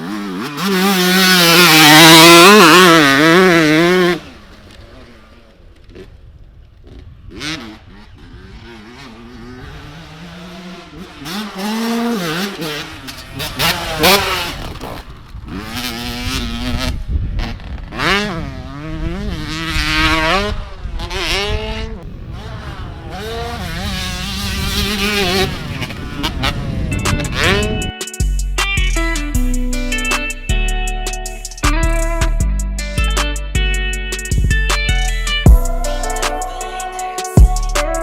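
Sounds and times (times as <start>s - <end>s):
pit bike engines revving: 0.0s - 28.0s.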